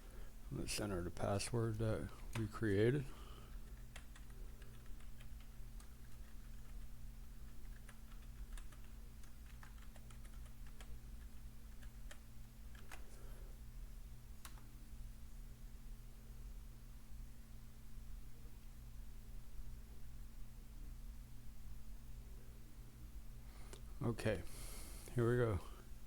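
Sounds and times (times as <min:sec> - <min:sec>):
low electrical hum: 0:00.0 - 0:26.0
keyboard typing: 0:03.5 - 0:13.1.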